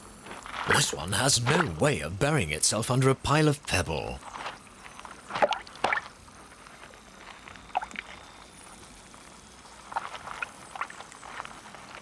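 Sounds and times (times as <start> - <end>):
faint steady hiss: 0.0 - 12.0
water sloshing and splashing: 4.2 - 6.2, 7.7 - 8.2, 9.8 - 12.0.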